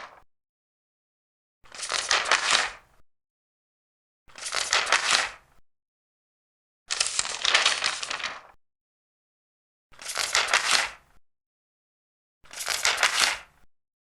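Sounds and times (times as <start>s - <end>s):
large paper pages turning: 0.0s - 0.2s, 1.7s - 2.9s, 4.3s - 5.4s, 6.9s - 8.6s, 10.0s - 11.0s, 12.5s - 13.5s.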